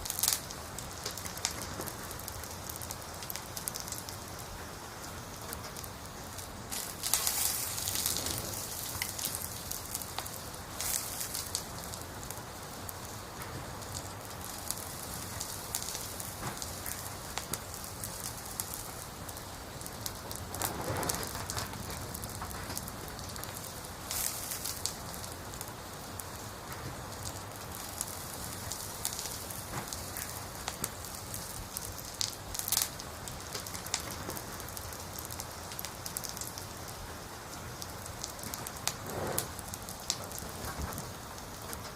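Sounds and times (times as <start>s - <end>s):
campfire crackling: 0.0s - 41.9s.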